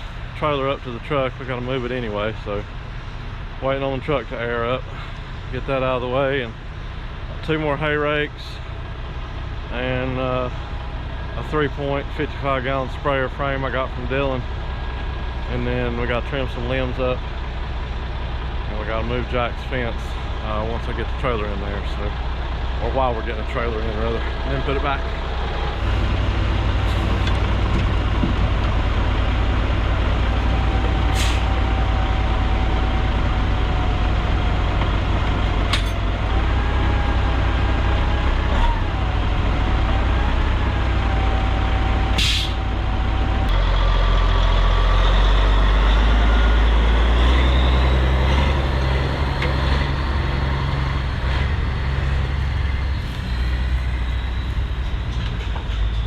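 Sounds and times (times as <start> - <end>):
truck engine running: 0.0 - 56.0
sharp hisses of air: 42.2 - 42.6.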